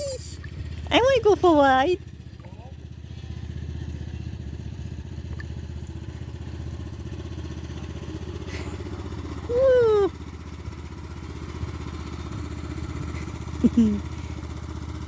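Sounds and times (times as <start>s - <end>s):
tractor engine running: 0.0s - 15.0s
person exclaiming ooh: 9.5s - 10.1s.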